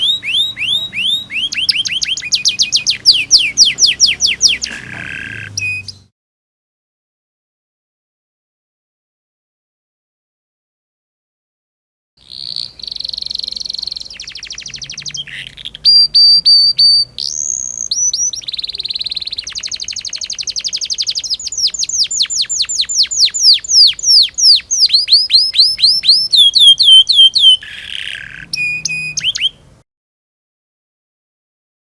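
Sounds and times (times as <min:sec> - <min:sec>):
canary singing: 0:00.0 - 0:06.1, 0:12.2 - 0:29.8.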